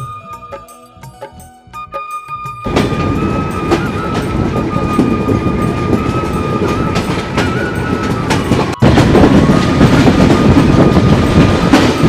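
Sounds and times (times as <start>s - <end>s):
train rumble: 2.6s - 12.0s
wheels clicking over rail joints: 2.7s - 12.0s.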